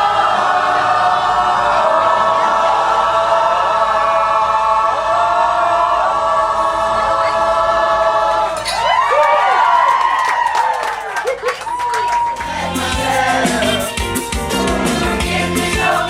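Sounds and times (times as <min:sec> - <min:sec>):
choir singing held chords: 0:00.0 - 0:08.9, 0:12.3 - 0:16.0.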